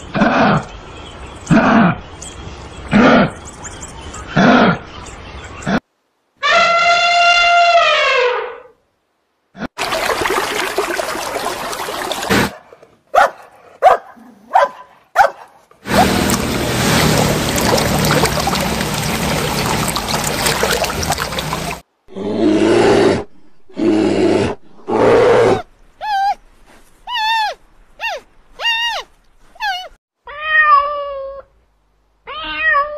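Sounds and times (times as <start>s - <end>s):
long rough animal call: 15.9s - 25.6s.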